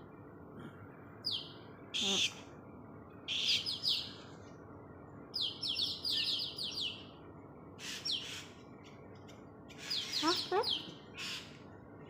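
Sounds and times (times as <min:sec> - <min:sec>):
bird giving high chirps: 0:09.7 - 0:11.5.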